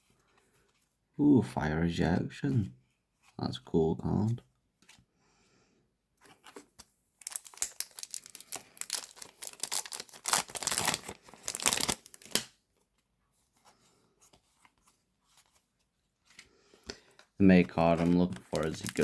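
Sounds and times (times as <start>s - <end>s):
foil pack tearing and crinkling: 7.2s - 12.5s, 18.4s - 19.0s.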